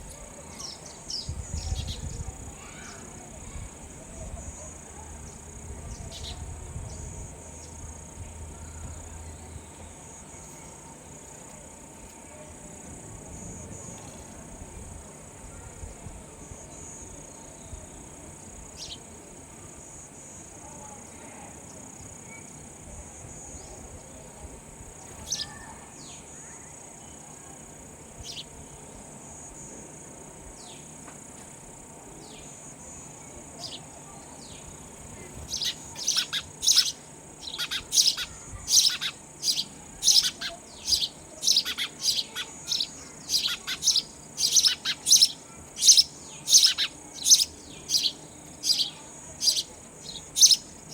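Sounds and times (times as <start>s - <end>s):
sparrows chirping: 0.3s - 11.5s, 16.4s - 19.1s, 23.3s - 26.8s, 28.2s - 29.0s, 32.2s - 50.9s
high-pitched insect drone: 35.3s - 50.9s.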